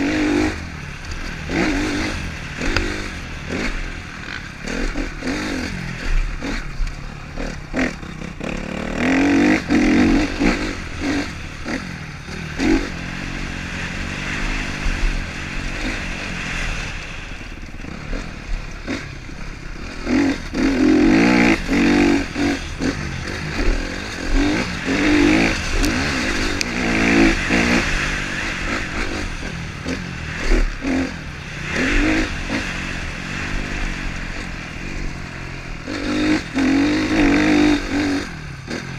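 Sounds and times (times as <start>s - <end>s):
motorcycle engines revving: 0.0s - 38.9s.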